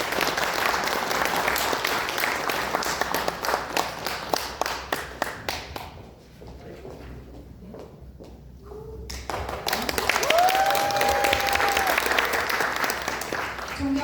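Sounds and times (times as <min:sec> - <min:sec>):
audience applauding: 0:00.0 - 0:05.6, 0:09.2 - 0:14.0.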